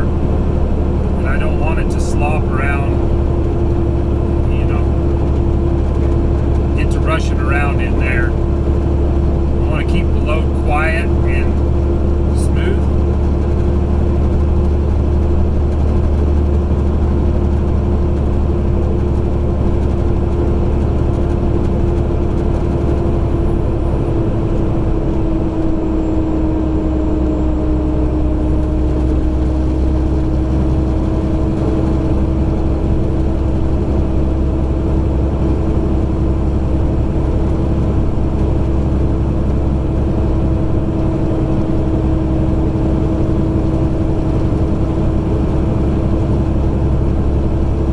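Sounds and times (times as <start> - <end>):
road noise: 0.0 - 26.0
diesel truck engine droning: 0.0 - 47.9.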